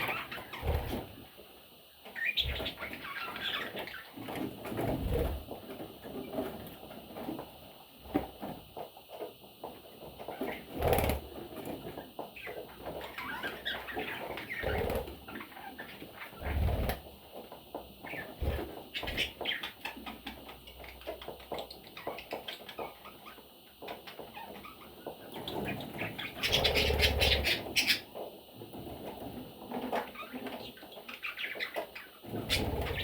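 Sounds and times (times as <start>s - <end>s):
parrots chirping: 2.1s - 4.2s, 24.1s - 28.0s, 30.1s - 33.0s.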